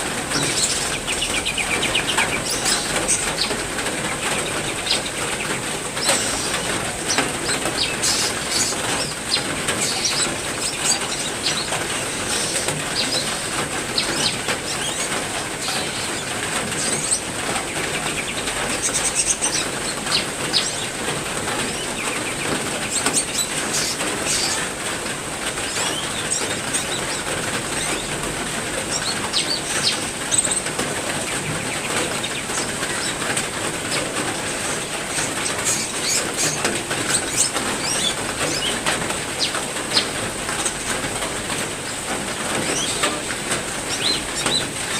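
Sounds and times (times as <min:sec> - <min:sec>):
birds chirping: 0:00.0 - 0:44.9
heavy rain: 0:00.0 - 0:44.9.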